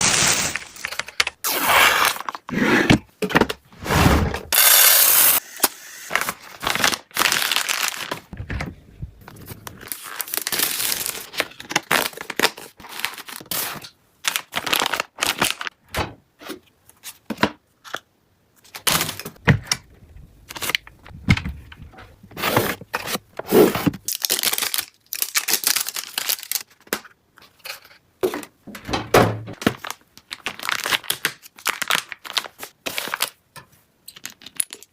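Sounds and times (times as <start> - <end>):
packaging tearing and crinkling: 0.0 - 2.4, 6.1 - 8.4, 9.3 - 15.7, 23.5 - 26.9, 29.6 - 33.4.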